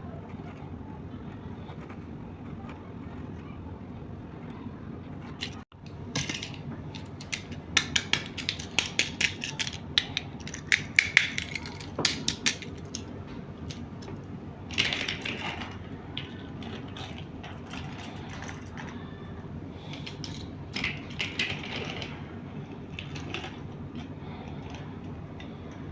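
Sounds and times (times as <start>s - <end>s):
plastic parts rattling: 5.4s - 13.1s, 14.7s - 19.0s, 19.8s - 25.5s
plastic toy parts clicking: 6.2s - 13.1s.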